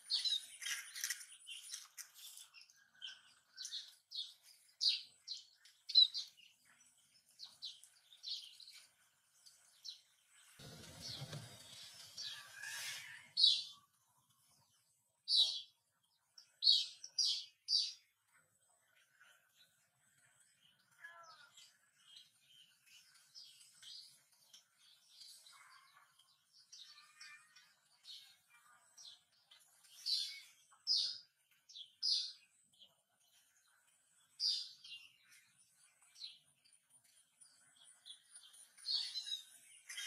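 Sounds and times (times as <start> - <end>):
small bird chirping: 0.0 - 40.0.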